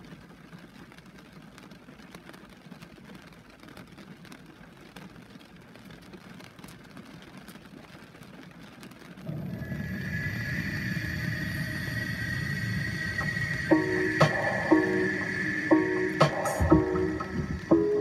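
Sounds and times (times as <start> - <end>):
rain tapping on window glass: 0.0 - 12.9
music: 9.7 - 18.0.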